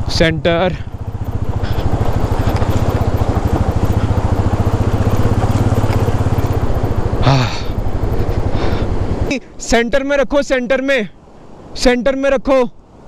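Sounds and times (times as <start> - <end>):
motorcycle engine at low revs: 0.0 - 9.3.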